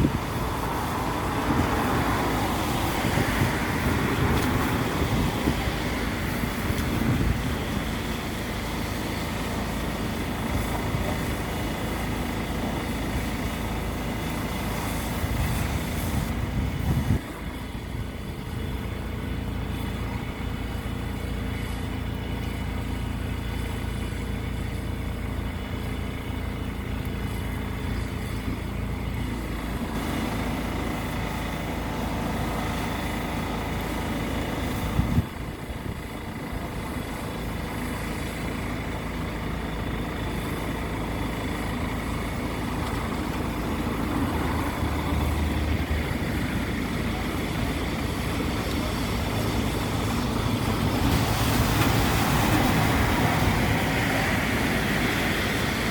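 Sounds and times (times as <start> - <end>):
heavy vehicle engine running: 0.0 - 55.9.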